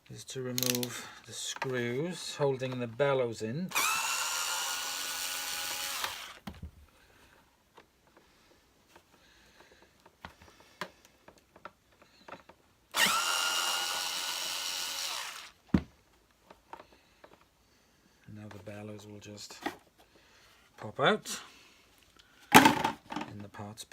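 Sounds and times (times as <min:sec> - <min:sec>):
power drill motor whining: 0:03.7 - 0:06.5, 0:12.9 - 0:15.6.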